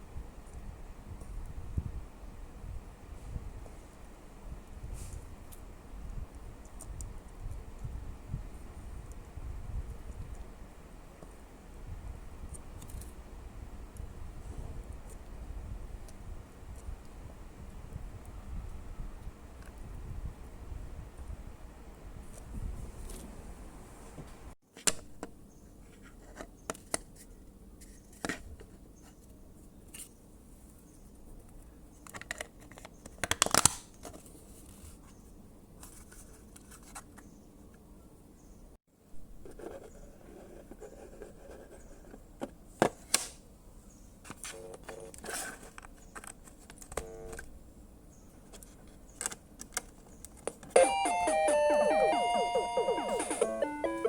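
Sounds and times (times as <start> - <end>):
synthesized music with arpeggios: 50.8 - 54.0.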